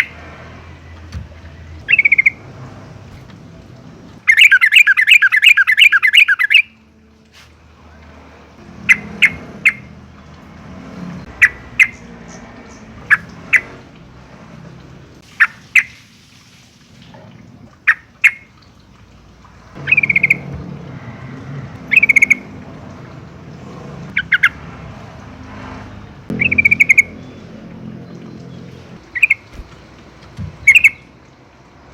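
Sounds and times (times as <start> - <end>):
bird calling: 1.8 - 2.4, 4.2 - 6.8, 11.3 - 13.8, 19.8 - 20.5, 21.9 - 22.5, 24.1 - 24.6, 26.3 - 29.9, 30.5 - 31.2.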